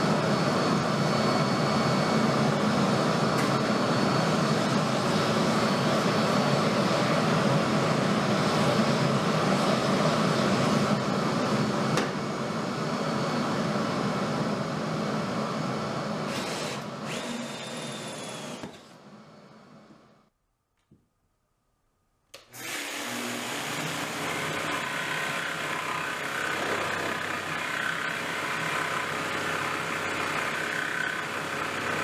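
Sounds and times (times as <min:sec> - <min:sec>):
woodworking power tool running: 0:16.2 - 0:19.0, 0:22.4 - 0:32.0.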